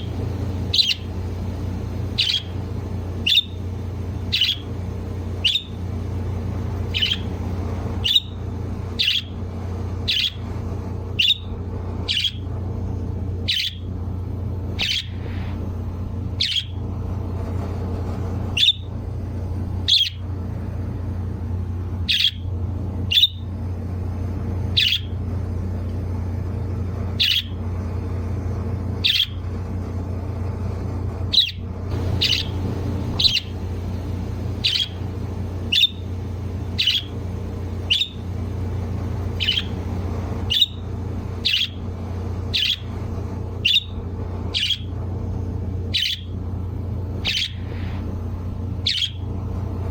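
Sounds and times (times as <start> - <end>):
bird chirping: 0.0 - 4.8, 5.4 - 5.8, 6.8 - 9.3, 10.1 - 10.4, 11.2 - 11.5, 12.1 - 12.4, 13.4 - 13.8, 14.8 - 15.4, 16.4 - 16.8, 19.9 - 20.2, 22.1 - 22.4, 23.1 - 23.4, 24.8 - 25.1, 27.2 - 27.5, 31.4 - 41.8, 42.5 - 42.9, 43.6 - 43.9, 44.5 - 44.9, 45.9 - 46.3, 47.2 - 47.8, 48.8 - 49.2
low hum: 0.0 - 49.9.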